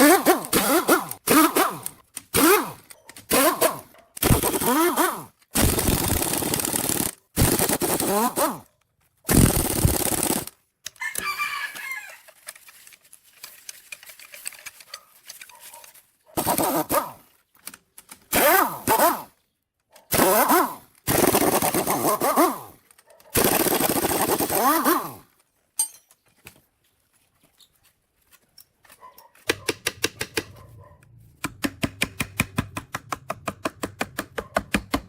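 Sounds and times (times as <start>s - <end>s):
rooster crowing: 11.0s - 12.3s.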